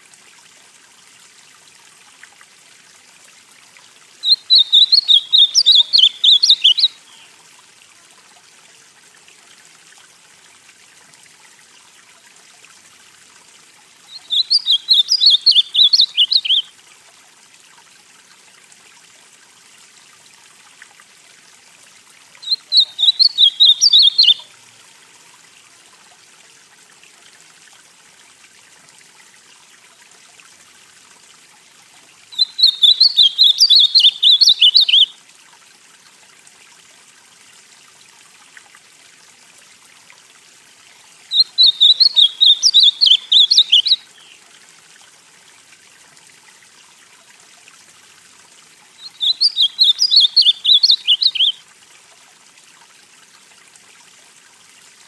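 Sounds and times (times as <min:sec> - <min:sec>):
bird singing warbled phrases: 0:04.2 - 0:07.3, 0:14.1 - 0:16.7, 0:22.4 - 0:24.5, 0:32.3 - 0:35.1, 0:41.3 - 0:44.4, 0:49.0 - 0:51.6.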